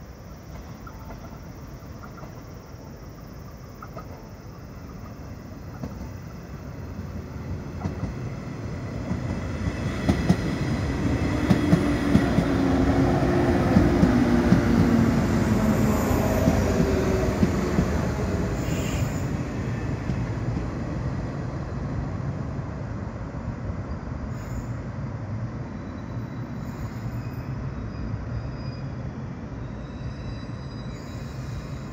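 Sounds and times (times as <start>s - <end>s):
train wheels rumbling: 0.0s - 25.0s
rail-joint clicks: 0.4s - 2.6s, 3.5s - 6.3s
brake squeals: 25.8s - 31.9s.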